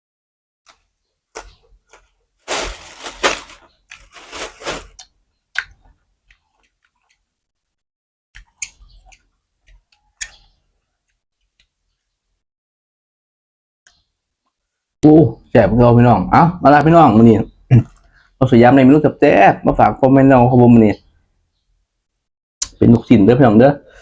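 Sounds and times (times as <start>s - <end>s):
crunching of crisp food chewed: 0.7s - 7.3s.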